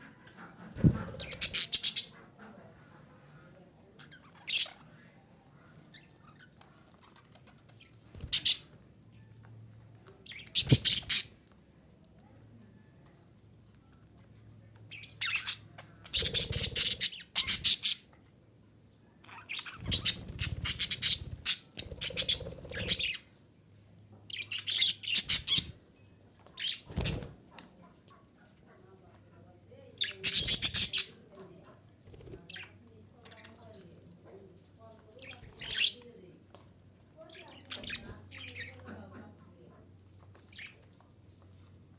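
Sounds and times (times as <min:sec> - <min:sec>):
budgerigar chattering: 0:01.2 - 0:02.2, 0:15.2 - 0:18.0, 0:19.5 - 0:23.2, 0:30.0 - 0:31.2.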